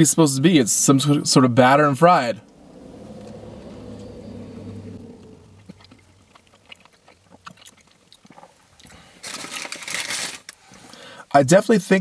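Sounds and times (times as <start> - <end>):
person chewing crispy food: 5.8 - 11.0.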